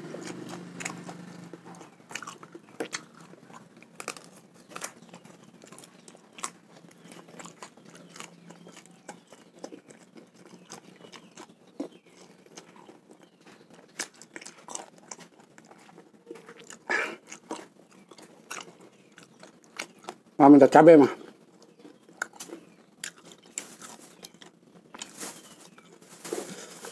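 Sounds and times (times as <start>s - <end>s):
loud bite: 0.0s - 9.2s
person chewing with mouth smacks: 0.0s - 20.3s, 21.6s - 26.7s.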